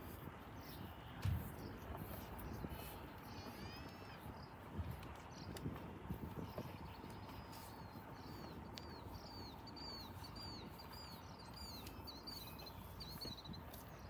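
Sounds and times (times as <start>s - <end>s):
small bird chirping: 6.3s - 14.0s.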